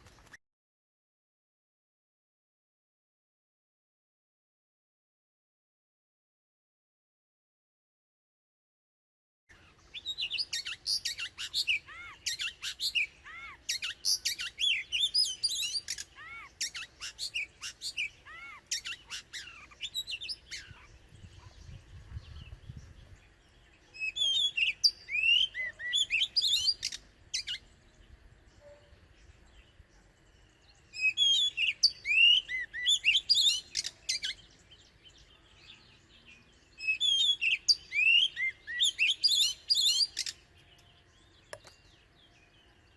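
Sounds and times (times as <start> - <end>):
bird whistles and chirps: 9.6 - 23.2, 23.8 - 27.7, 28.6 - 29.0, 30.6 - 42.1.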